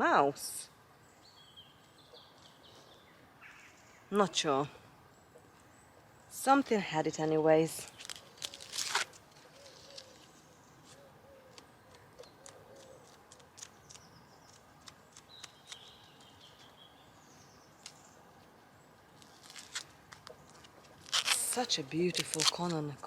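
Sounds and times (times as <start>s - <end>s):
small clicks and rustles: 7.8s - 16.7s, 19.2s - 22.8s
distant birds calling: 8.0s - 21.1s.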